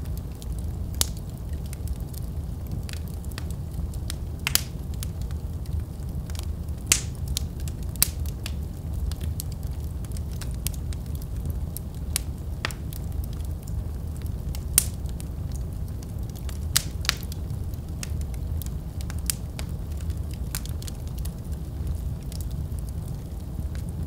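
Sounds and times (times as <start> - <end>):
fire crackling and popping: 0.0 - 24.0.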